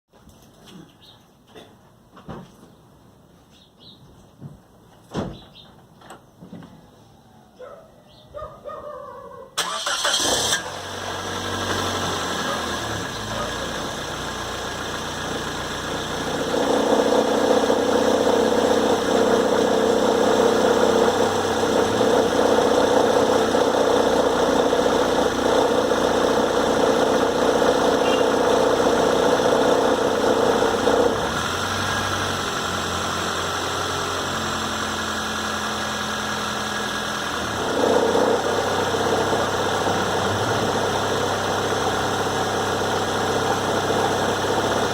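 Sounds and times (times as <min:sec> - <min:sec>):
car engine running: 0:09.6 - 0:44.9.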